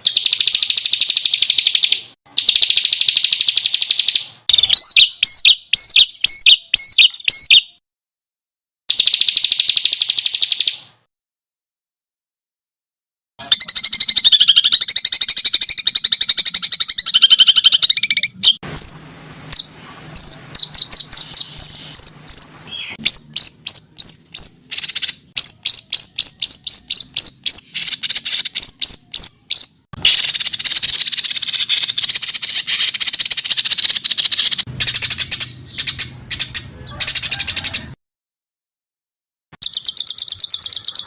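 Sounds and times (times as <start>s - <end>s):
buzzy bird trill: 0.0s - 7.8s, 8.9s - 10.9s, 13.4s - 38.0s, 39.6s - 41.0s
sharp high bird chips: 13.4s - 37.3s.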